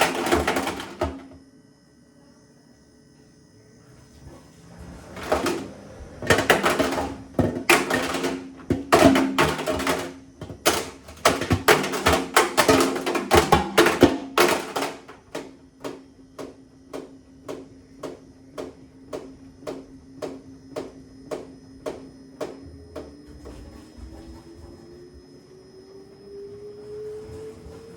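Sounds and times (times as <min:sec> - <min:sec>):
calculator banging in washing machine: 0:00.0 - 0:01.4, 0:04.8 - 0:24.8
washing machine motor hum: 0:00.0 - 0:27.9.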